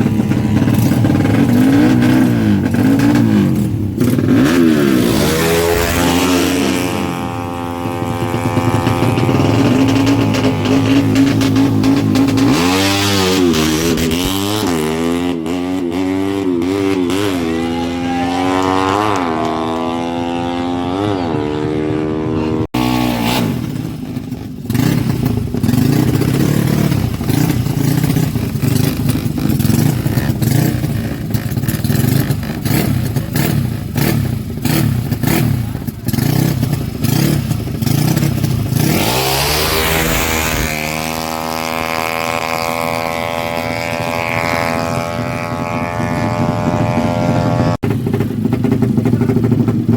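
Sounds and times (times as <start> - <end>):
motorcycle engine revving: 0.0 - 49.9
gusting wind: 37.8 - 48.7.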